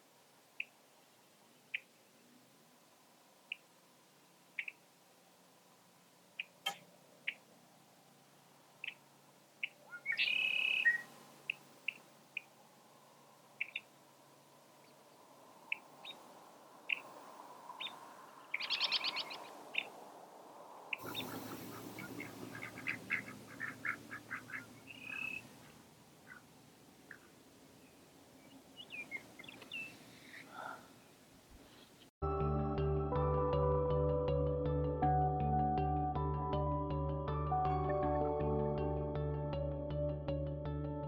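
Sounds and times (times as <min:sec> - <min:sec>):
birds chirping: 0:04.5 - 0:04.9, 0:06.3 - 0:07.6, 0:08.2 - 0:32.1
bird rapid trill: 0:09.6 - 0:12.5, 0:17.8 - 0:19.9, 0:20.9 - 0:25.6.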